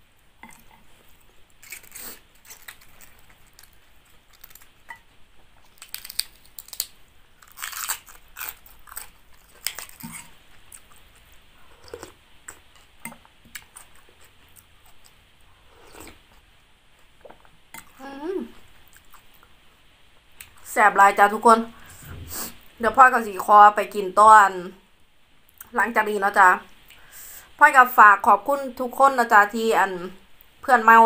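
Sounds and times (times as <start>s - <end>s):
chewing and crunching food: 0.5s - 5.0s, 5.6s - 16.4s
cabbage leaves tearing: 1.6s - 4.8s, 5.7s - 10.3s.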